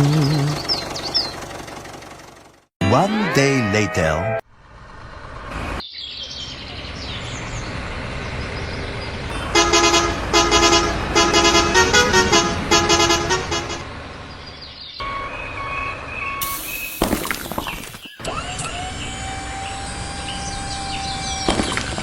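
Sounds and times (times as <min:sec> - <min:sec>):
truck engine rumble: 0:00.0 - 0:22.0
truck horn toots: 0:09.3 - 0:13.9
two-tone beeping: 0:15.0 - 0:16.9.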